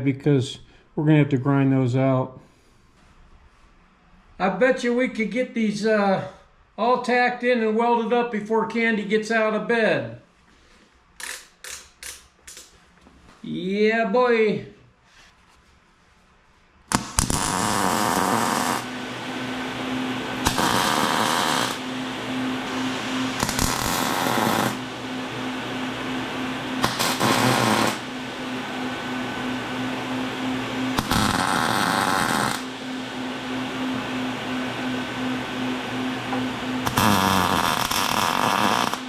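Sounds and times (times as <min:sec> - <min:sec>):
steady humming noise: 0:00.0 - 0:39.0
welder arc crackling and buzzing: 0:11.2 - 0:12.7, 0:16.9 - 0:39.0.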